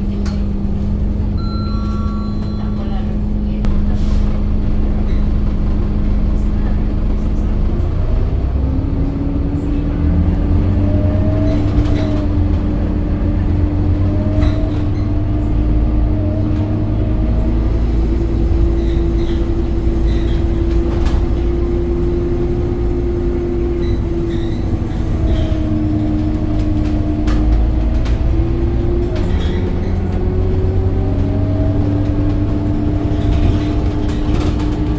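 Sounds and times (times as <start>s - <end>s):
bus diesel engine rumbling: 0.0s - 34.9s.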